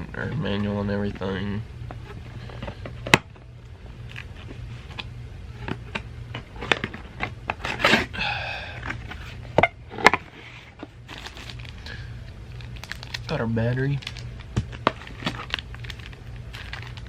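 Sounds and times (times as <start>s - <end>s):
low steady hum: 0.0s - 17.0s
packaging rustle: 5.7s - 17.0s.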